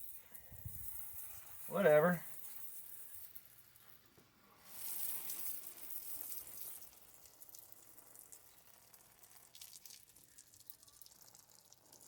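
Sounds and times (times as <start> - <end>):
hose spraying water: 0.0 - 12.0.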